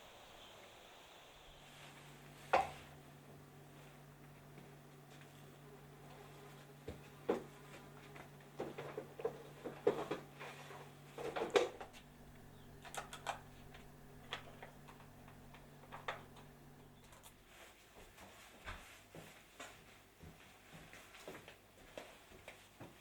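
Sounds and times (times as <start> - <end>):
steady low hum: 0.0 - 17.8.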